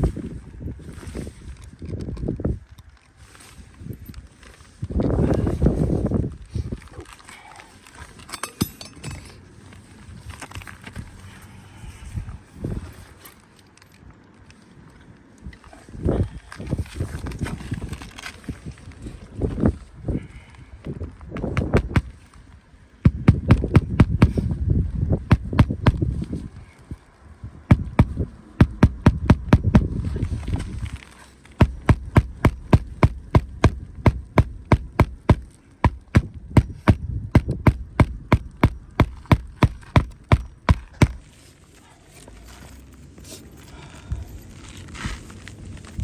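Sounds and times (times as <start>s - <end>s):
hammer driving nails: 31.6s - 41.2s.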